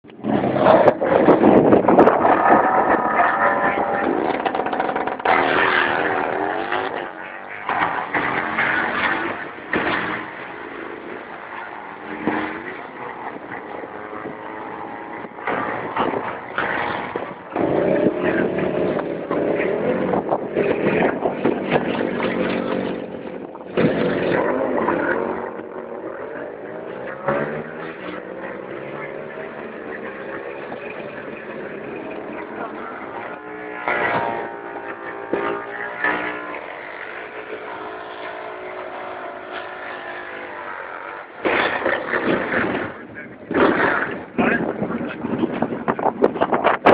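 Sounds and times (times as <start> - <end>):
motorcycle engines revving: 0.0 - 46.9.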